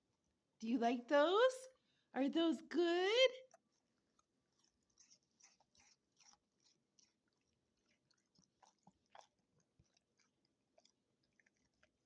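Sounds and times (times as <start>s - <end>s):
dog chewing and crunching snacks: 3.4s - 12.0s.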